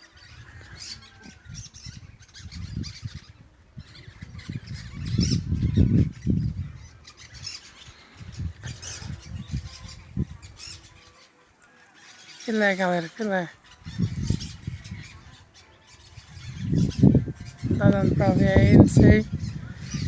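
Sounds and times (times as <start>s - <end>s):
parakeets chattering and squawking: 0.0s - 20.0s
low rumble on microphone: 13.8s - 20.0s.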